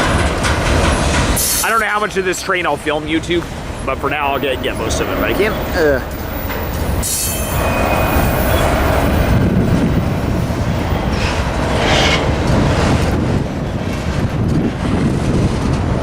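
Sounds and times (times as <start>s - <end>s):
train wheels rumbling and clacking: 0.0s - 16.0s
high screech: 7.0s - 9.5s, 11.2s - 12.3s.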